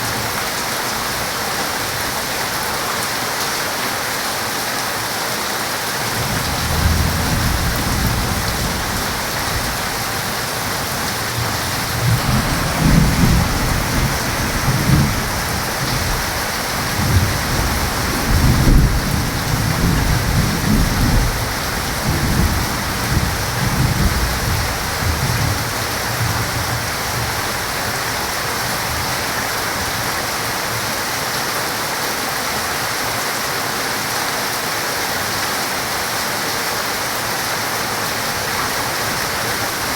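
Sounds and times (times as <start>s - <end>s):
heavy rain: 0.0s - 39.9s
thunder rumbling: 6.1s - 30.2s.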